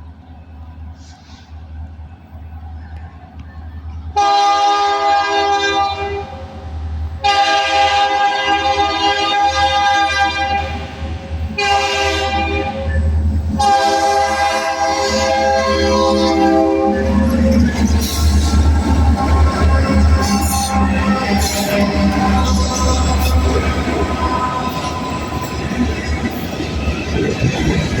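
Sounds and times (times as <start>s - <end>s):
locomotive air horn blasts: 4.2s - 6.3s, 7.2s - 10.8s, 11.6s - 17.0s, 19.1s - 23.6s.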